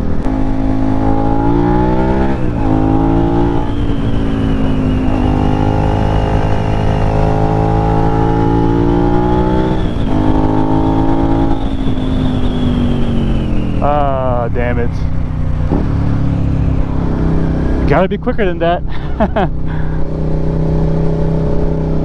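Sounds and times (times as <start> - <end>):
wind rush on microphone: 0.0 - 13.8
motorcycle engine revving: 0.0 - 22.0.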